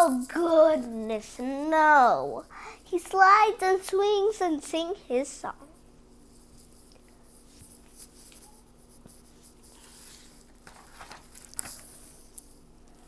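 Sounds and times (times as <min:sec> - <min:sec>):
rustling handling noise: 0:05.7 - 0:13.0.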